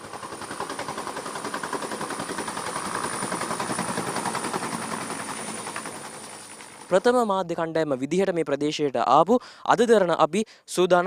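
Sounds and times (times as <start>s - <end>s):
helicopter rotor chopping: 0.0s - 7.6s.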